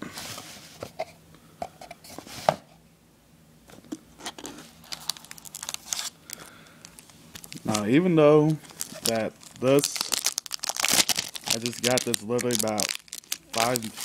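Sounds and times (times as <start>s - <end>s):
packaging rustling and crinkling: 4.2s - 14.0s.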